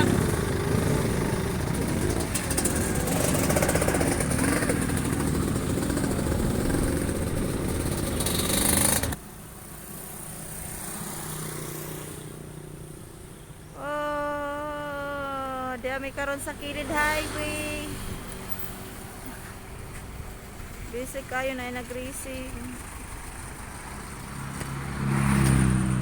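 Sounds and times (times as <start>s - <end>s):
motorcycle engines at high revs: 0.0s - 13.2s.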